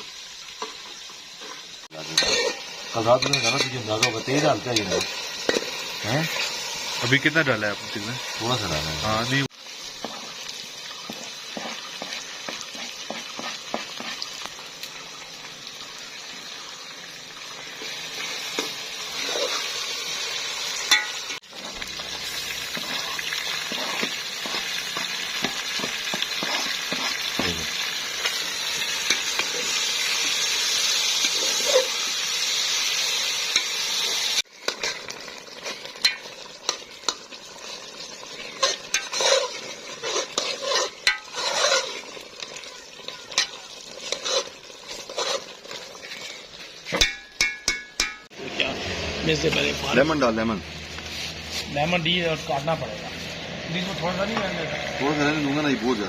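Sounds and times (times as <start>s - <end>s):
chicken sizzling in a pan: 0.0s - 56.0s
metal spoon scraping a pan: 0.6s - 9.2s, 9.9s - 14.6s, 17.7s - 48.3s.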